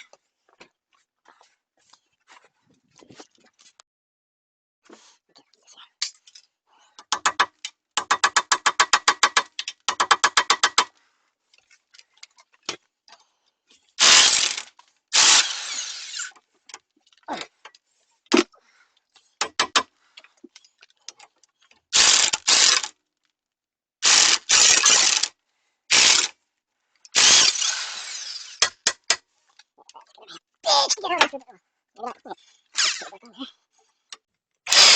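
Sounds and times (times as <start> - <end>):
power tool bursts: 14.0 - 16.3, 22.0 - 22.9, 24.0 - 25.3, 25.9 - 26.3, 27.2 - 28.8, 34.7 - 34.9
ratchet clicking: 14.0 - 16.4, 22.0 - 22.9, 24.0 - 25.3, 25.9 - 26.3, 27.1 - 29.2, 34.7 - 34.9.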